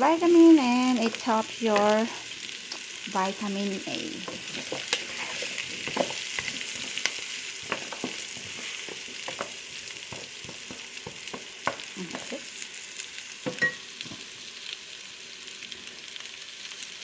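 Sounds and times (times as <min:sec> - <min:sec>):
food sizzling in a frying pan: 0:00.0 - 0:17.0
utensil scraping a pan: 0:04.2 - 0:12.4.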